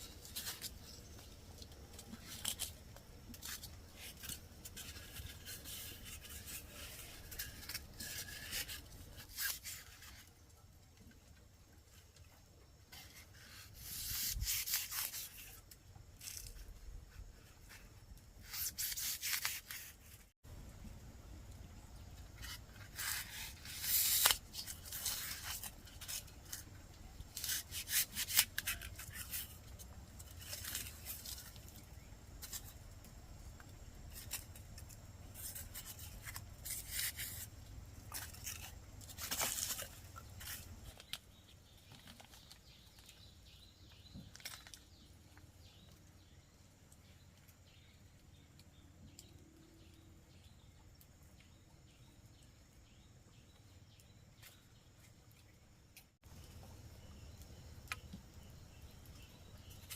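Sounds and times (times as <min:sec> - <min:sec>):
hand scraping and rubbing: 0:00.0 - 0:10.4, 0:12.9 - 0:20.4, 0:22.3 - 0:32.8.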